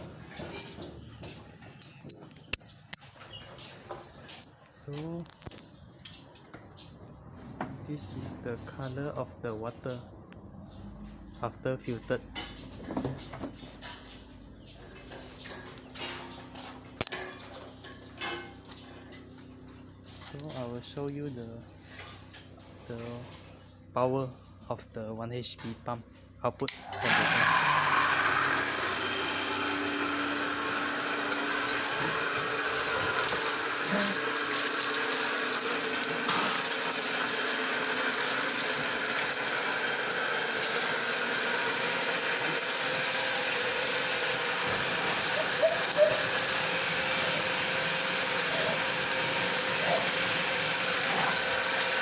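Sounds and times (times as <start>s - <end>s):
electric water pump running: 26.8s - 52.0s
water rushing under pressure: 31.4s - 52.0s.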